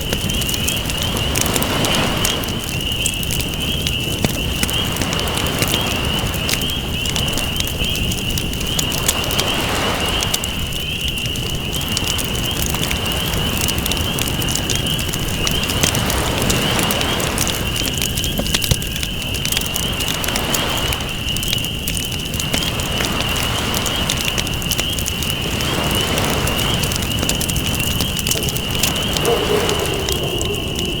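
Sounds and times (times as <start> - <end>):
campfire crackling and popping: 0.0 - 31.0
ocean waves: 0.4 - 2.9, 4.2 - 7.6, 8.8 - 10.7, 19.8 - 21.1, 22.5 - 31.0.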